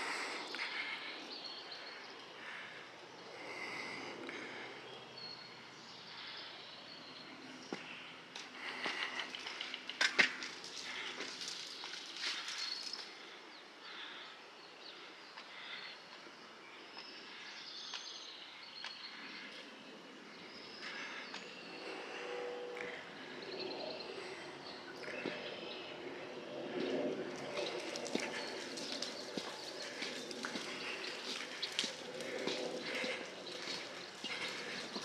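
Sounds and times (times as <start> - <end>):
footsteps crunching on a trail: 7.6 - 13.2, 26.8 - 35.0.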